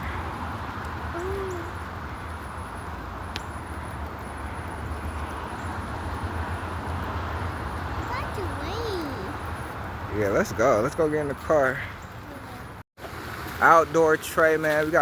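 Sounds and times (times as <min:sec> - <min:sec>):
light rain falling: 0:00.0 - 0:08.2.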